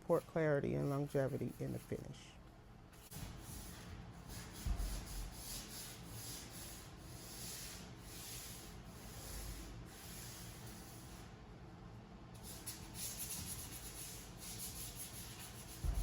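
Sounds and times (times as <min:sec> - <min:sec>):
sandpaper scratching wood: 0:03.0 - 0:11.2, 0:12.4 - 0:16.0.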